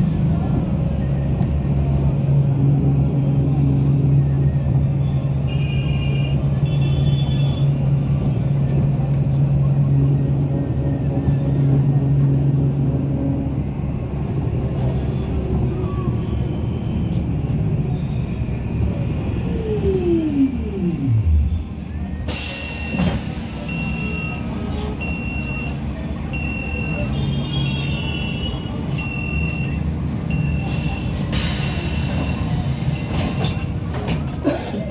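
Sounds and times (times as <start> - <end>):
road traffic rumble: 0.0 - 34.9
downward pitch sweep: 18.9 - 21.8.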